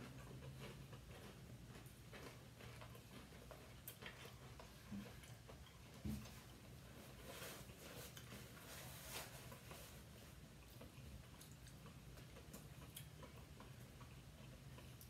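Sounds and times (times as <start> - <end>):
chewing sandwich: 0.0 - 15.0
paper towel rustling: 6.9 - 10.3.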